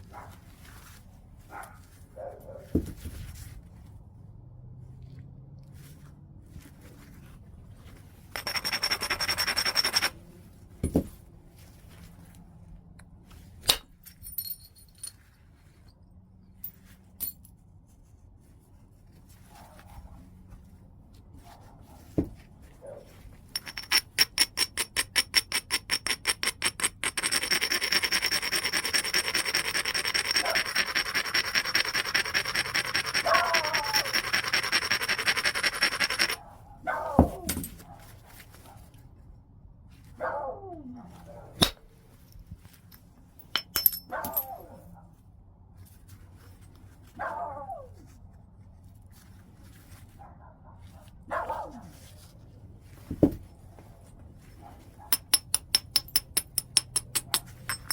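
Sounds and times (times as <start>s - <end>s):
rapid scraping on stone: 8.3s - 10.2s, 23.6s - 36.4s.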